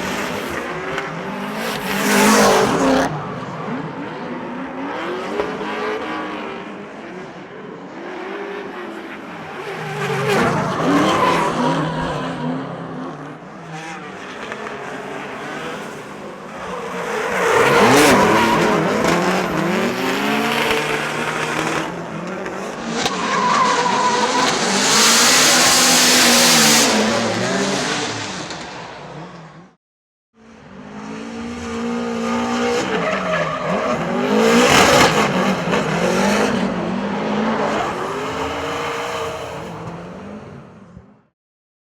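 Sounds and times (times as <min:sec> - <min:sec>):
turbocharged engines revving: 0:09.3 - 0:29.4
tyres squealing on track: 0:22.9 - 0:26.6.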